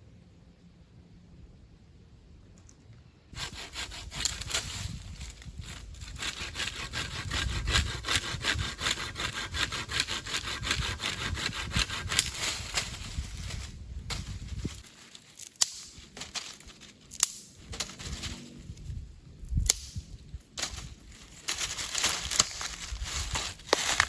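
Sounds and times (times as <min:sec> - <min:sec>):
hand saw cutting wood: 0:03.4 - 0:13.2, 0:20.6 - 0:24.0.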